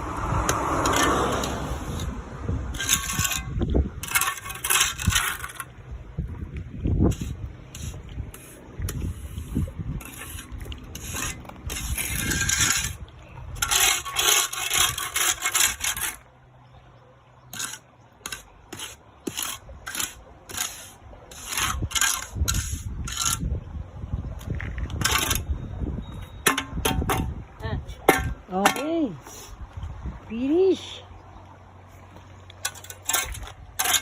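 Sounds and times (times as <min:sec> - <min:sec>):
trowel scraping wet concrete: 0:00.4 - 0:05.8, 0:07.1 - 0:16.3, 0:17.5 - 0:23.5, 0:24.4 - 0:25.5, 0:32.5 - 0:34.0.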